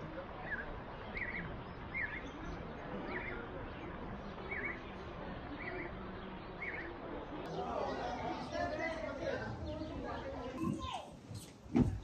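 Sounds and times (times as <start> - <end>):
background noise: 0.0 - 12.0
small bird chirping: 0.4 - 4.9.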